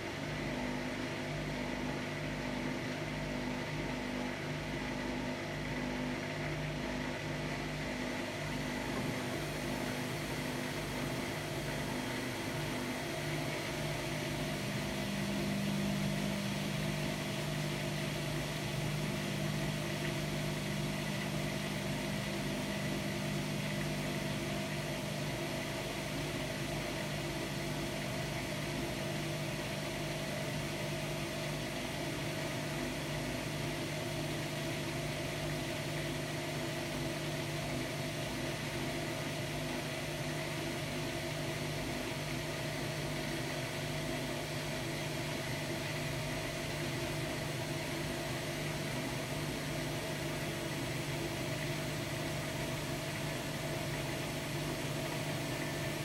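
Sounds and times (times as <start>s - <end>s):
washer-dryer humming: 0.0s - 56.0s.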